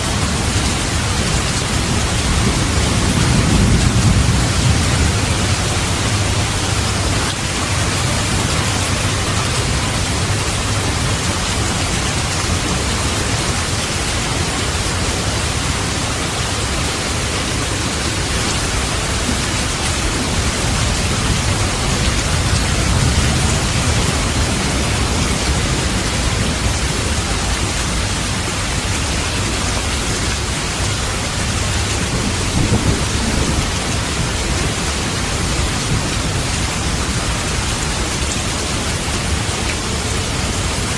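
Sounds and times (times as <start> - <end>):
steady rain hissing: 0.0 - 40.9
low rumbles of thunder: 0.1 - 11.6, 31.4 - 38.2.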